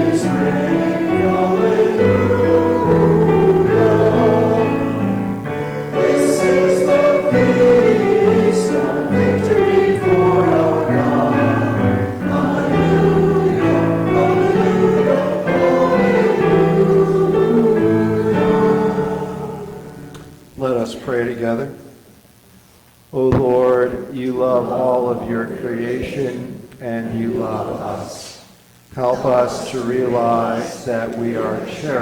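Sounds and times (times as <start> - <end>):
piano accompaniment: 0.0 - 20.4
congregation singing a hymn: 0.0 - 21.7, 23.2 - 32.0.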